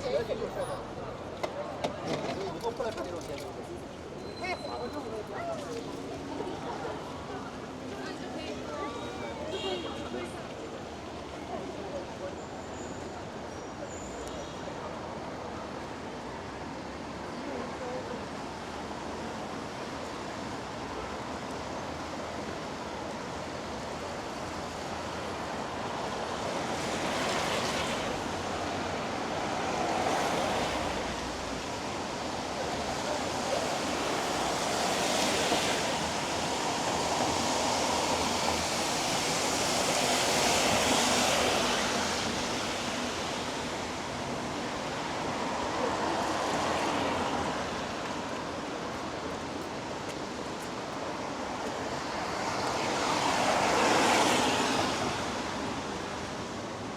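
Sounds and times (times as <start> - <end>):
rain on a street: 0.0 - 56.9
vehicles passing on wet road: 14.1 - 56.9.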